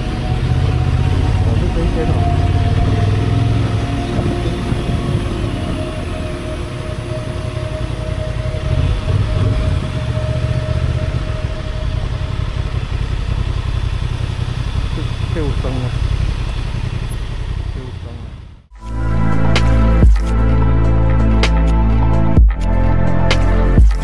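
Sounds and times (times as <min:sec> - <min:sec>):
motorcycle engine idling: 0:00.0 - 0:18.8.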